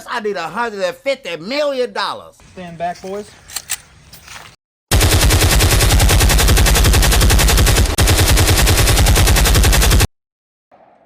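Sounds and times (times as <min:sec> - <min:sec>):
rapid automatic gunfire effect: 0:04.9 - 0:10.1.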